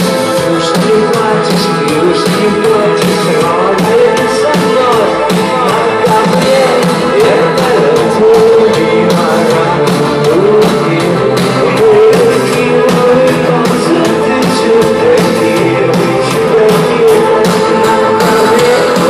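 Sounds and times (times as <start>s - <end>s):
drums steady beat: 0.0s - 19.0s
guitars: 0.0s - 19.0s
person singing melody: 0.0s - 19.0s.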